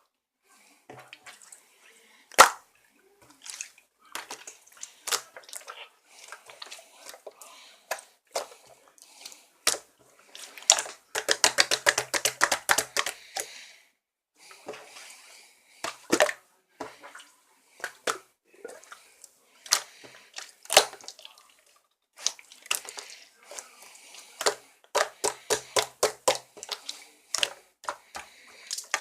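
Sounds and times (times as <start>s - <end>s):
slime squishing and popping: 2.4s - 2.6s, 10.6s - 13.2s, 20.7s - 21.2s.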